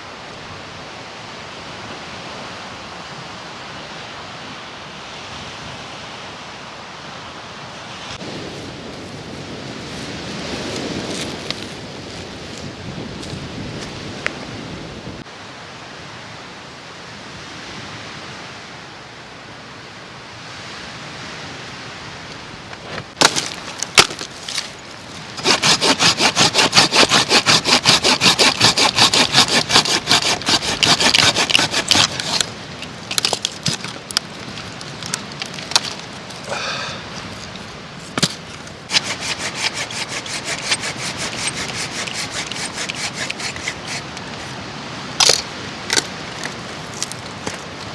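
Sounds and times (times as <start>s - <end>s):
hand saw cutting wood: 9.9s - 11.8s, 22.9s - 44.6s, 45.2s - 47.9s.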